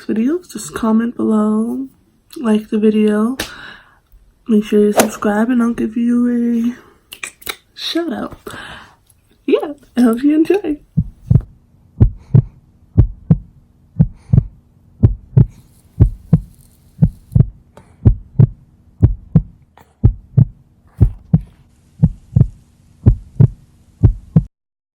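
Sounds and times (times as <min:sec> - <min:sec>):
low steady hum: 0:07.8 - 0:24.5
deep heartbeat-like thumps: 0:10.9 - 0:24.5.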